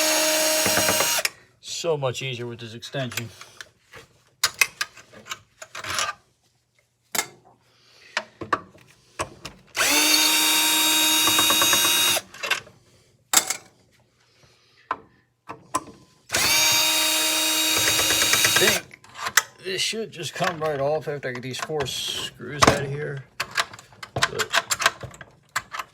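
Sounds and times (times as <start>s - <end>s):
power drill running: 0.0s - 1.3s, 9.8s - 12.3s, 16.3s - 18.9s.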